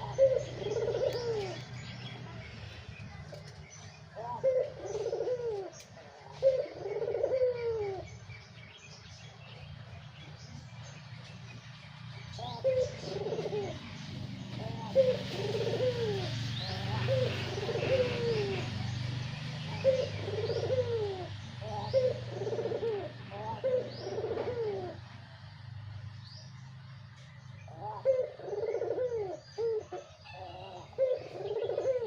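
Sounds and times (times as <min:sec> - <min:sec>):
dove cooing: 0:00.0 - 0:01.9, 0:04.1 - 0:08.2, 0:12.3 - 0:25.1, 0:27.7 - 0:32.0
small birds chirping: 0:00.0 - 0:32.0.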